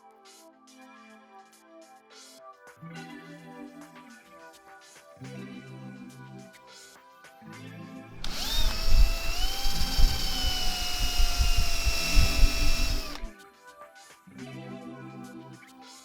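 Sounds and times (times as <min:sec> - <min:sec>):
soft background music: 0:00.0 - 0:16.0
power tool motor whining: 0:08.2 - 0:13.3.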